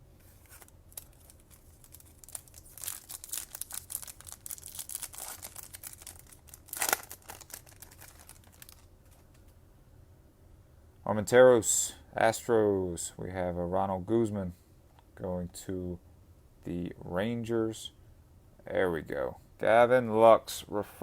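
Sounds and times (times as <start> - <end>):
card pack wrapper tearing and crinkling: 0.3 - 9.4.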